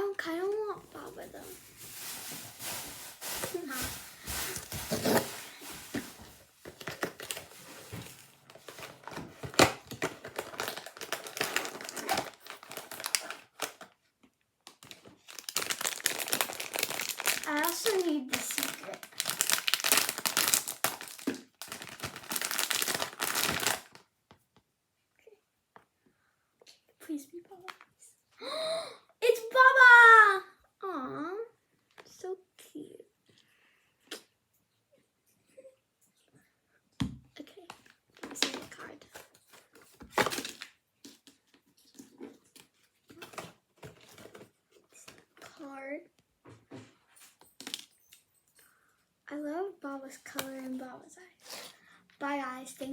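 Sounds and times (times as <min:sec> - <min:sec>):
packaging crinkling and tearing: 0:00.6 - 0:14.0, 0:14.6 - 0:24.0, 0:38.2 - 0:41.4.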